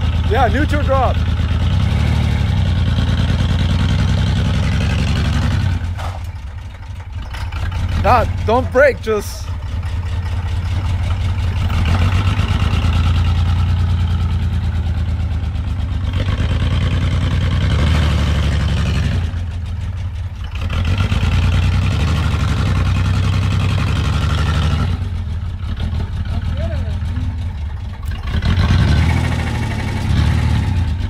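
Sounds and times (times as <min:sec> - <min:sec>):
pickup engine revving high: 0:00.0 - 0:06.0, 0:11.3 - 0:19.4, 0:28.0 - 0:31.0.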